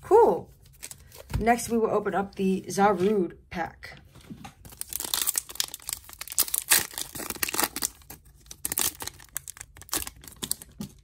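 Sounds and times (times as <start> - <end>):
foil wrapper tearing and crinkling: 4.6 - 11.0.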